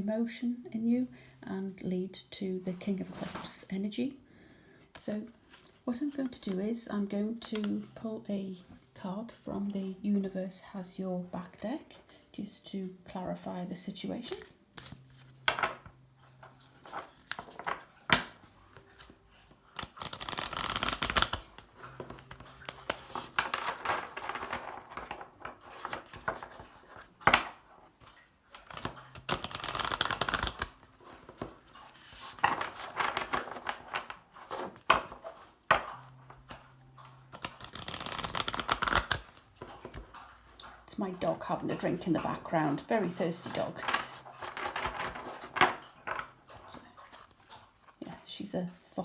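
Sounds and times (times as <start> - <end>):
cards being shuffled: 14.2 - 15.9, 16.5 - 19.1, 19.7 - 40.8, 43.4 - 47.5.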